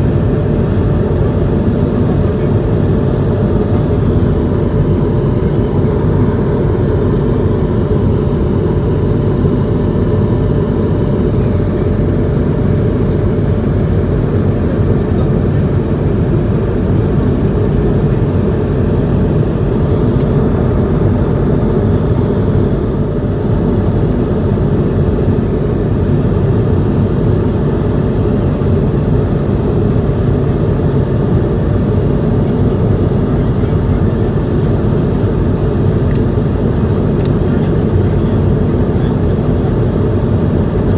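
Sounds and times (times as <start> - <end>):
airliner cabin engine roar: 0.0 - 40.9.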